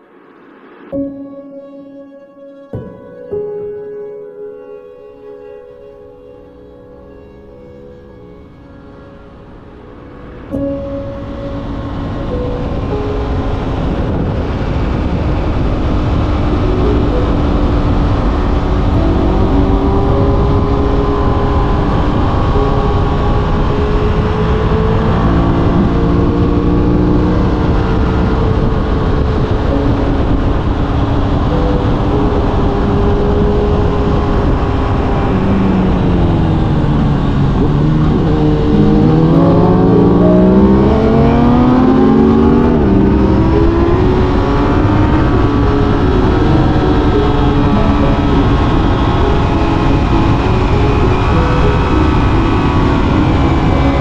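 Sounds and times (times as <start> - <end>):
heavy wind noise: 6.0 - 54.0
motorcycle engine revving: 17.5 - 31.6, 32.3 - 54.0.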